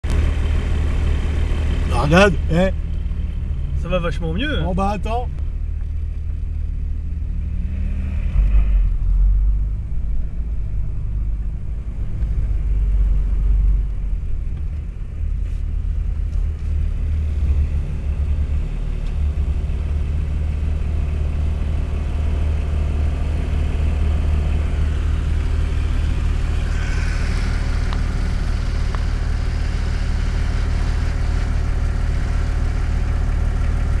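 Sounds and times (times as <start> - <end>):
engine deep rumble: 0.0 - 34.0
high hiss: 26.2 - 29.4.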